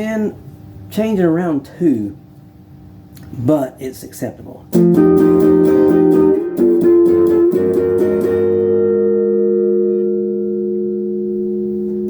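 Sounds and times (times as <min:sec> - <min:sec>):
electric guitar chords: 0:04.7 - 0:12.0.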